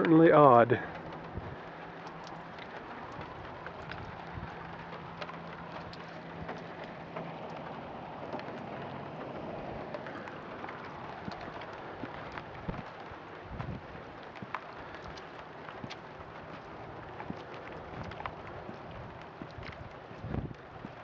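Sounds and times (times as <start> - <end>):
small ticks and clicks: 0.0 - 21.0.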